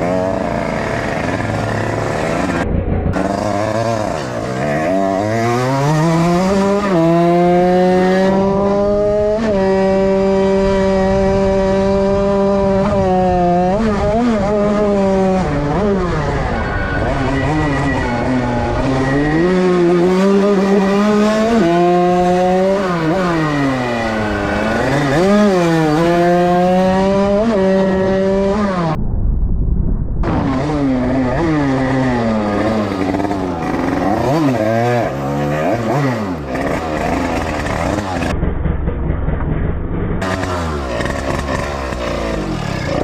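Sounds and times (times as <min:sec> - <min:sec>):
two-stroke motorcycle engine revving: 0:00.0 - 0:29.0, 0:30.2 - 0:43.0.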